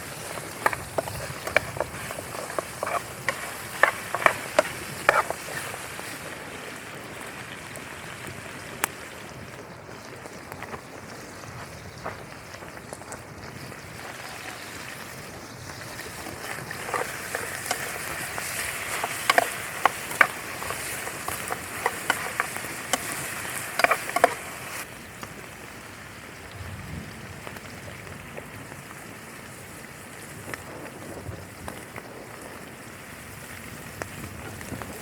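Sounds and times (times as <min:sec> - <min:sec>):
sharp clicks and taps: 0:00.2 - 0:05.7, 0:16.7 - 0:24.8
steady rain falling: 0:23.8 - 0:35.0.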